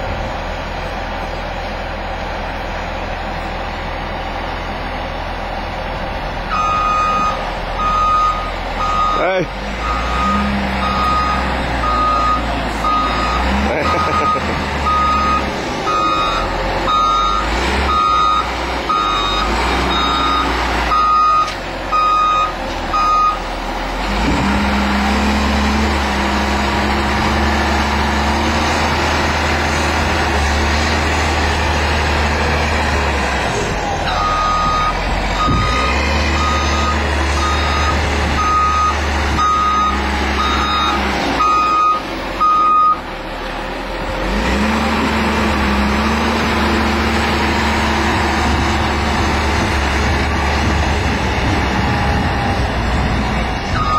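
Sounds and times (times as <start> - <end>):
heavy vehicle engine running: 0.0 - 53.9
reversing alarm beeping: 6.5 - 23.4, 34.1 - 43.0.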